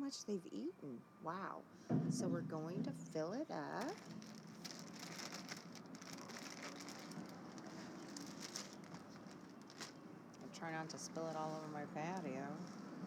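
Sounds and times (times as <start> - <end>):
bird seed pattering: 3.6 - 11.6.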